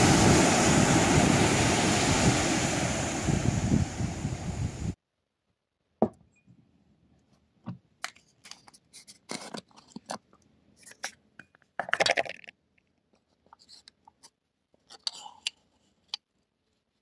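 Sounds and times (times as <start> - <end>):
small clicks taps and scrapes: 7.2 - 17.0.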